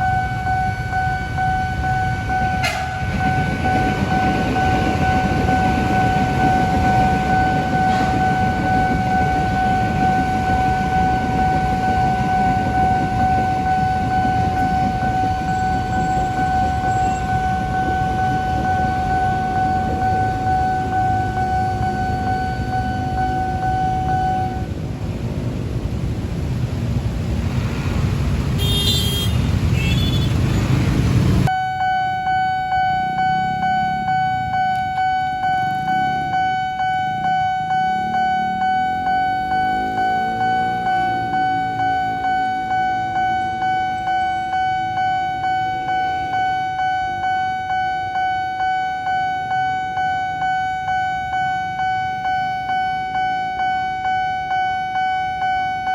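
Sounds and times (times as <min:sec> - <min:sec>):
level crossing warning bell: 0:00.0 - 0:24.8, 0:31.5 - 0:55.9
train rumbling past: 0:00.0 - 0:28.6, 0:29.3 - 0:31.5, 0:32.6 - 0:46.4
train horn blast: 0:02.1 - 0:10.0, 0:28.6 - 0:30.3
motor vehicle passing: 0:25.8 - 0:28.6, 0:29.4 - 0:31.5.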